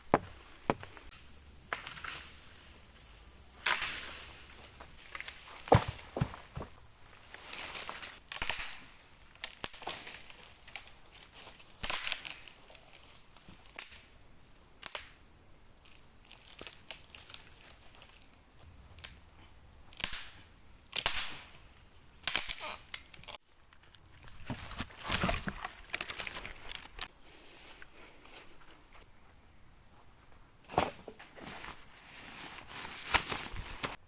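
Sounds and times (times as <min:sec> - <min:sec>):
insects chirring: 0:00.0 - 0:34.0
footsteps breaking twigs: 0:22.2 - 0:27.1.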